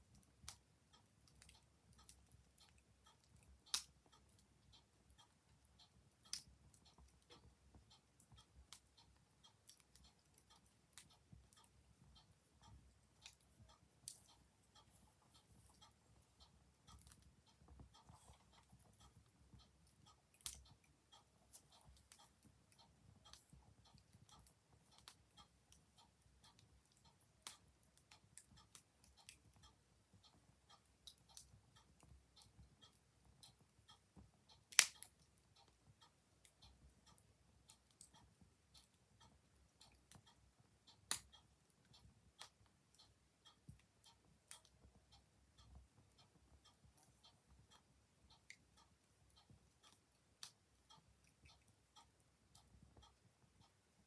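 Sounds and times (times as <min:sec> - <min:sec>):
wood fire crackling and popping: 0:34.7 - 0:35.0.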